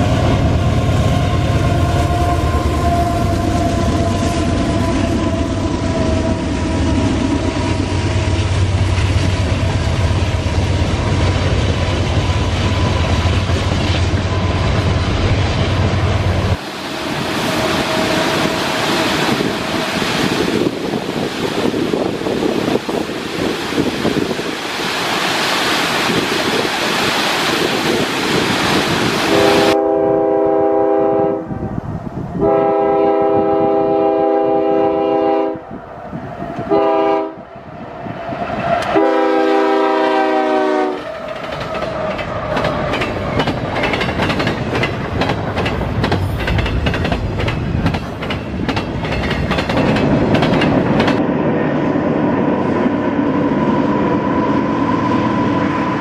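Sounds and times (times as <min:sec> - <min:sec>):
locomotive air horn: 0:00.8 - 0:07.0, 0:17.0 - 0:19.2, 0:29.2 - 0:31.7, 0:32.4 - 0:35.7, 0:36.7 - 0:37.4, 0:38.9 - 0:41.2
rushing waterfall: 0:15.8 - 0:29.8
train wheels clicking on rails: 0:40.9 - 0:51.3.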